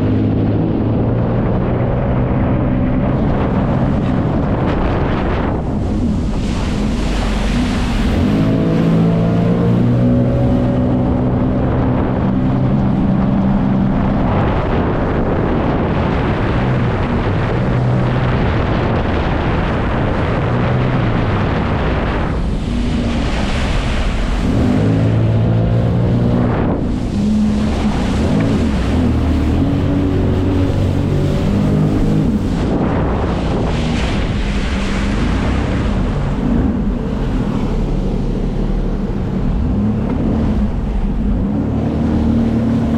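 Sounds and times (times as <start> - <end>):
jet ski engine running: 0.0 - 42.9
wind on microphone: 0.0 - 42.9
water spray rushing: 5.3 - 11.0, 16.1 - 39.1.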